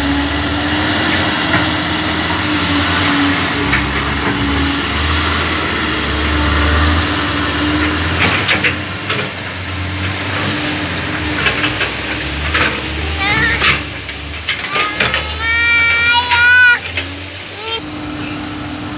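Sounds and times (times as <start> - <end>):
heavy diesel engine running: 0.0 - 18.9.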